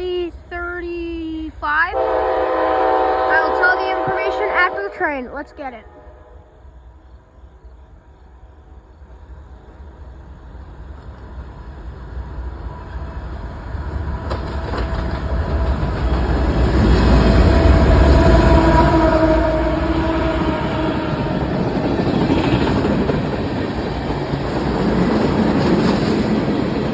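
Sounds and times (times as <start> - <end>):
diesel locomotive engines: 0.0 - 26.9
train wheels on rails: 6.6 - 26.9.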